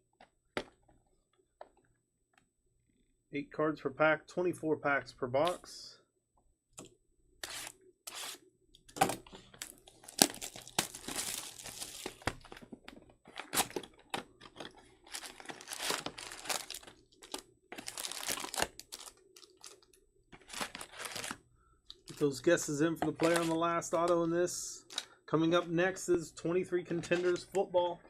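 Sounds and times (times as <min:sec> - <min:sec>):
plastic wrappers tearing and crinkling: 0:09.5 - 0:12.6, 0:13.3 - 0:19.8, 0:20.4 - 0:21.4, 0:23.2 - 0:23.6.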